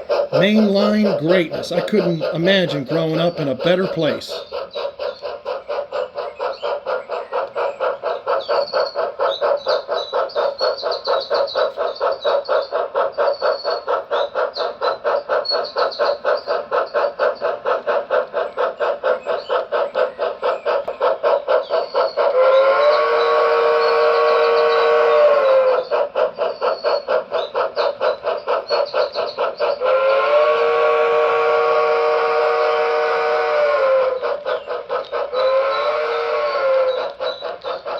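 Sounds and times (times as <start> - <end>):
steam locomotive chuffs: 0.0 - 37.9
train whistle blast: 22.3 - 25.9, 29.8 - 34.3, 35.4 - 37.1.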